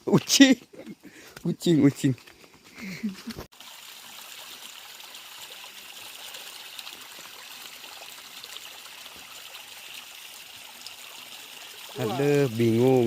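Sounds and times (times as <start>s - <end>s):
steady rain falling: 11.9s - 13.0s.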